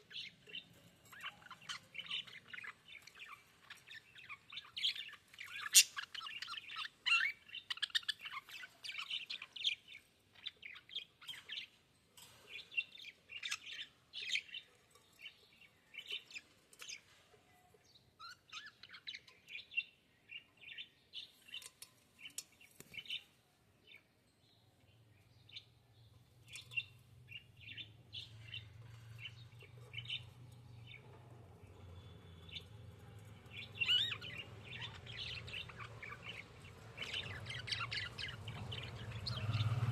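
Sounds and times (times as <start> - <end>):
budgerigars chirping: 0.1 - 11.7, 33.4 - 39.8.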